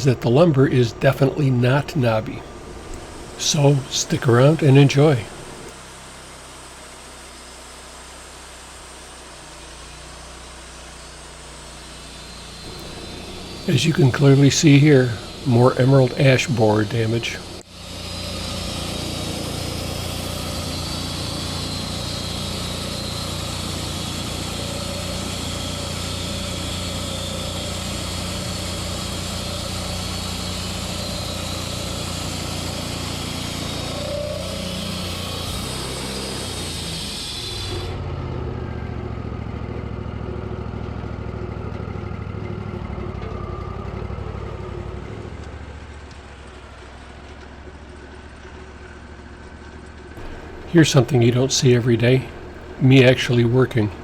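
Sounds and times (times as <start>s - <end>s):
high hissing noise: 0.0s - 5.7s, 12.2s - 37.8s, 50.2s - 54.0s
engine running: 0.0s - 54.0s.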